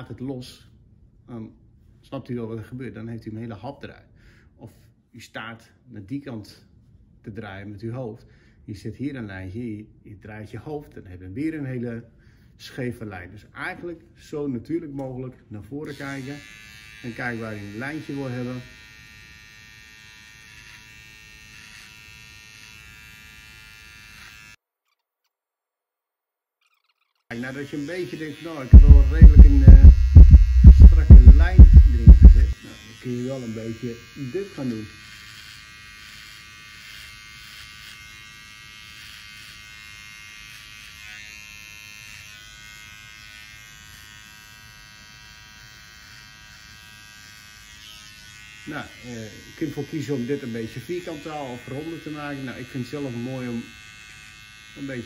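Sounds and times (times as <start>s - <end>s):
electric beard trimmer buzzing: 15.9s - 24.6s, 27.3s - 55.0s.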